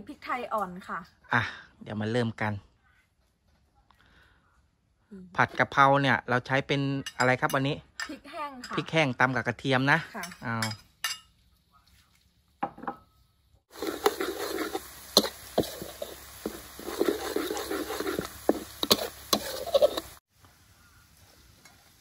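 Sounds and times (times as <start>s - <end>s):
chilli and garlic sizzling in oil: 9.7s - 22.0s
metal spatula scraping wok: 13.7s - 20.2s.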